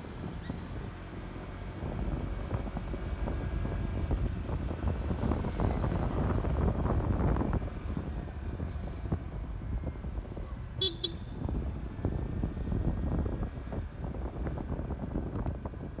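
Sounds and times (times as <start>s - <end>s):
wind and road rumble: 0.0s - 16.0s
vehicle horn toot: 10.8s - 11.5s.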